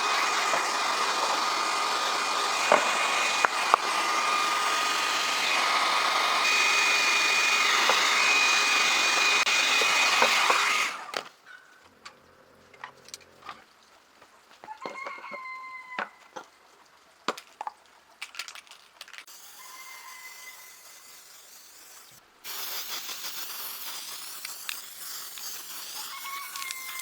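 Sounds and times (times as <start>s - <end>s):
high-speed motor whining: 0.0s - 11.2s.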